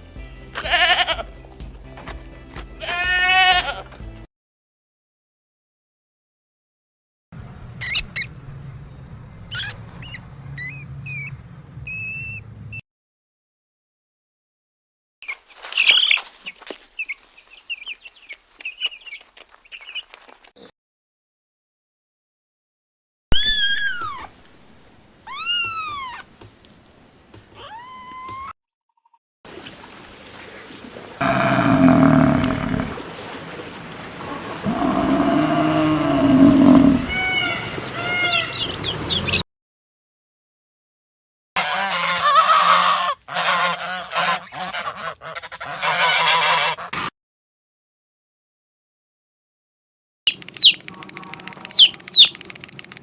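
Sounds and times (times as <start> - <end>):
large animal low drawn-out call: 31.2 - 33.0, 34.3 - 37.5
small animal squeaking: 50.3 - 52.5.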